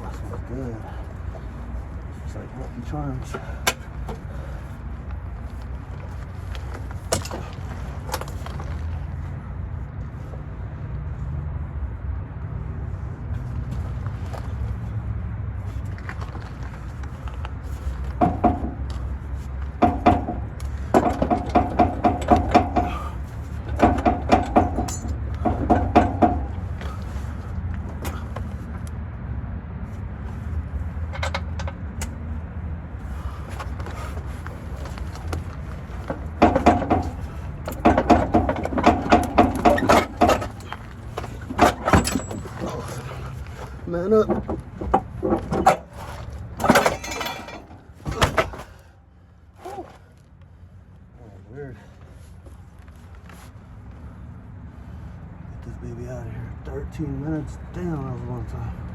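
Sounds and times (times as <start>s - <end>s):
ringing metal clanks: 18.2s - 18.9s, 19.8s - 27.0s, 36.0s - 43.4s, 44.2s - 48.7s.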